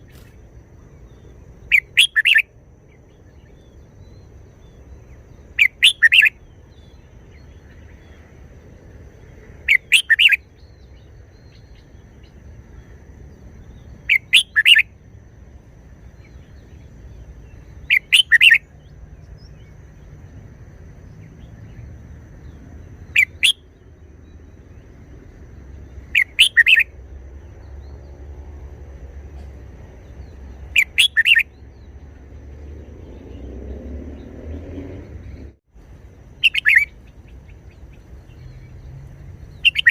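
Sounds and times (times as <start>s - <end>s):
bird singing short phrases: 0.9s - 8.1s, 9.7s - 12.3s, 13.7s - 14.8s, 16.1s - 20.1s, 25.8s - 26.9s, 29.4s - 32.1s, 36.4s - 39.9s.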